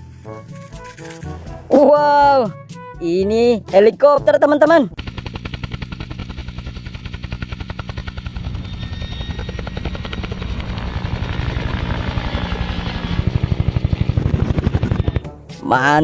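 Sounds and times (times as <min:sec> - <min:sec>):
helicopter rotor chopping: 0:00.0 - 0:02.5, 0:04.3 - 0:15.7
low engine hum: 0:05.0 - 0:15.4.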